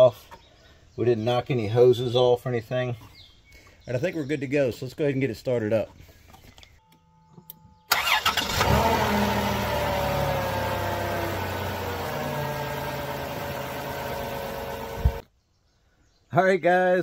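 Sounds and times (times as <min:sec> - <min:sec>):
car engine cranking and starting: 0:07.9 - 0:15.2
car engine idling: 0:07.9 - 0:15.2.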